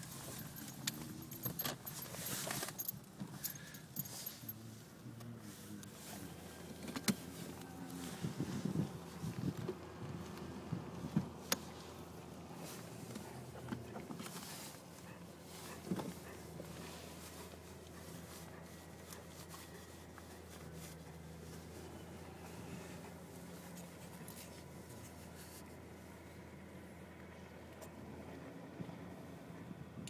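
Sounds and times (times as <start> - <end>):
small clicks and rattles: 0.0 - 4.5
light metallic jangling: 0.0 - 4.6
low vehicle hum: 0.0 - 30.0.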